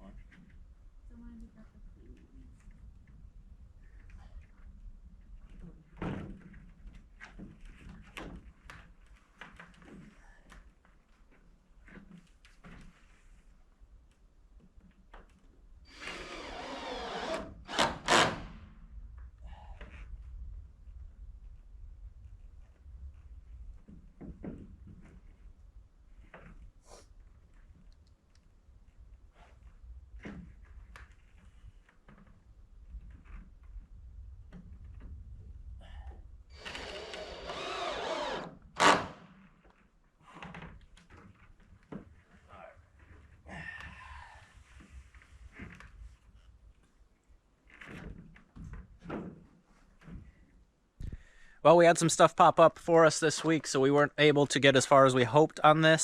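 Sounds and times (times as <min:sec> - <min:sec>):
power drill running: 0:15.9 - 0:18.4, 0:36.6 - 0:39.2.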